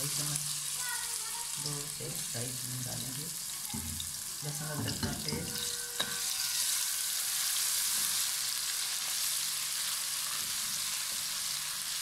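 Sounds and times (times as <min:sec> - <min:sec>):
paste sizzling in hot oil: 0:00.0 - 0:12.0
metal spoon stirring: 0:04.8 - 0:07.0.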